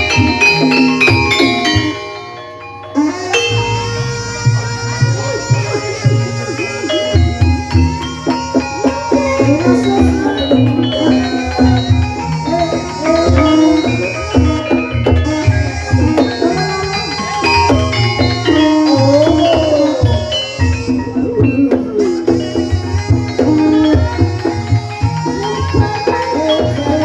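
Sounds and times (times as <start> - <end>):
gliding melody line: 0.0 - 27.0
struck tuned metal notes: 0.0 - 27.0
low drum beats: 3.5 - 27.0.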